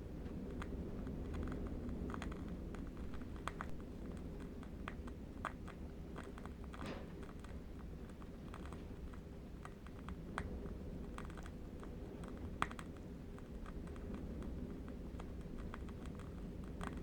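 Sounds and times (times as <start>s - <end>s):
distant wind rumble: 0.0s - 7.4s.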